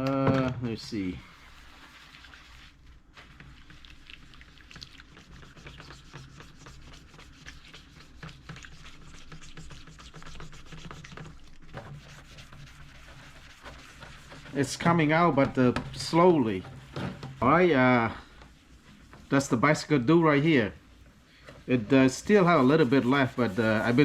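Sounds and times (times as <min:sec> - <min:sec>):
scratchy hand scrubbing: 0:00.9 - 0:24.0.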